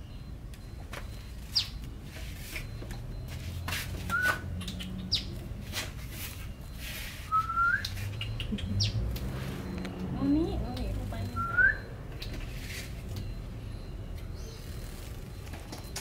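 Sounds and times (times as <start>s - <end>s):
bird chirps: 0.0s - 2.0s, 4.0s - 5.6s, 6.7s - 15.9s
short rising whistles: 7.2s - 8.5s.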